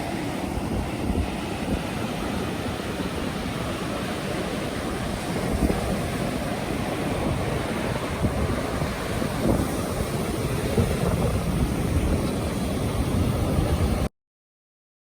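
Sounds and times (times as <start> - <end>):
ocean surf on a beach: 0.0 - 14.1
wind buffeting the microphone: 0.0 - 14.1.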